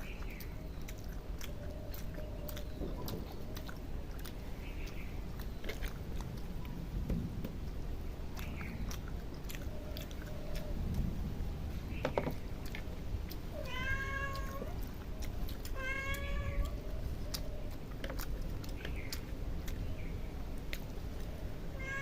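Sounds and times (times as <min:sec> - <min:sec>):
chewing clicks: 0:00.0 - 0:11.2, 0:11.9 - 0:21.6
cat meowing: 0:13.5 - 0:14.9, 0:15.7 - 0:16.8, 0:21.8 - 0:22.0.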